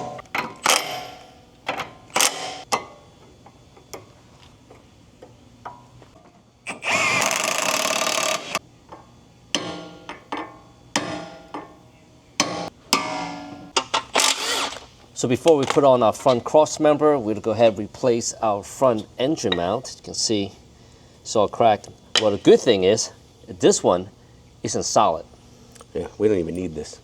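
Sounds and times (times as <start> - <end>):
cordless power tool running: 6.7 - 8.6, 14.2 - 14.8.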